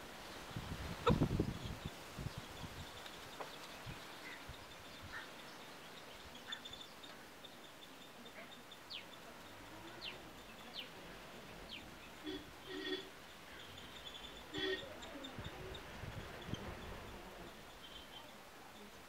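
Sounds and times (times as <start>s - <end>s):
faint outdoor background: 0.0s - 19.0s
small birds chirping: 0.0s - 19.0s
lower bird call: 11.7s - 18.4s.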